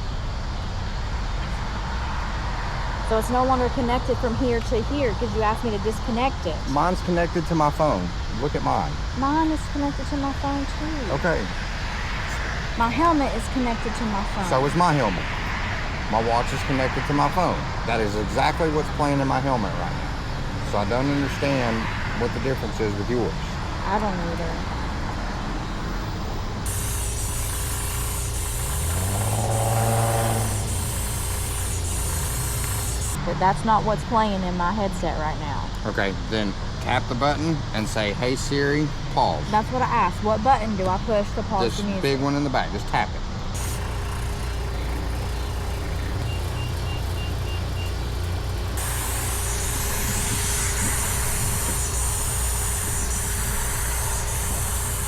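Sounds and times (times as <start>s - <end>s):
vehicle engine running: 0.0s - 41.8s, 43.4s - 55.0s
steady hiss: 26.3s - 33.2s, 43.5s - 55.0s.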